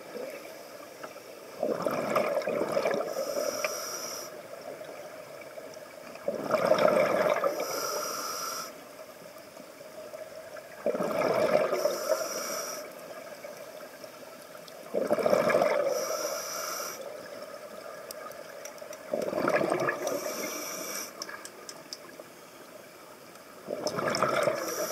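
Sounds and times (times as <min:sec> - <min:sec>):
gurgling exhaled bubbles: 0:01.6 - 0:03.3, 0:06.2 - 0:07.6, 0:10.8 - 0:12.2, 0:14.8 - 0:16.1, 0:19.0 - 0:20.4, 0:23.6 - 0:24.9
regulator hiss: 0:03.1 - 0:04.5, 0:07.4 - 0:08.9, 0:11.7 - 0:13.1, 0:15.8 - 0:17.4, 0:20.0 - 0:21.4, 0:24.6 - 0:24.9.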